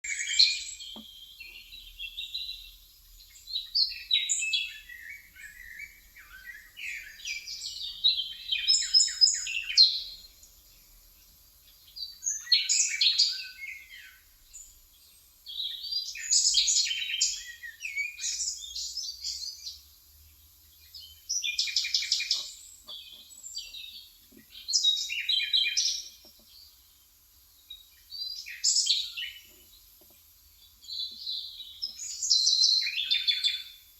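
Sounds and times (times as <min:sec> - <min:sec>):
birds chirping and trilling: 0:00.1 - 0:10.8, 0:20.7 - 0:26.8, 0:30.6 - 0:33.8.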